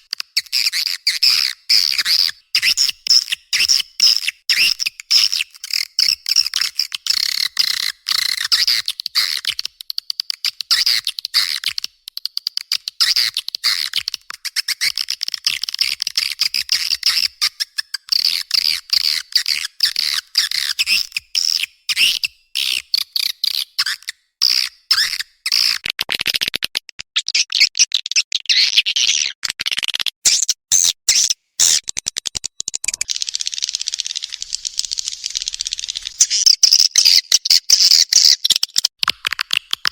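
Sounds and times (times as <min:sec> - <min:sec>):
swiftlets twittering: 0:30.3 - 0:36.5.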